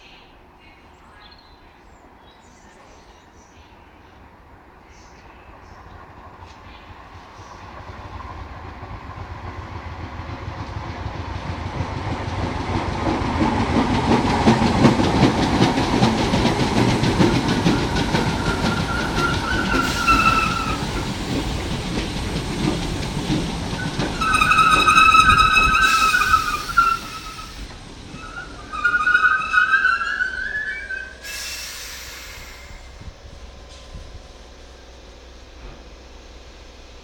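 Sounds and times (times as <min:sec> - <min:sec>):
train wheels clattering on rails: 0:05.8 - 0:34.4
train brakes squealing: 0:17.3 - 0:21.5, 0:23.7 - 0:33.0.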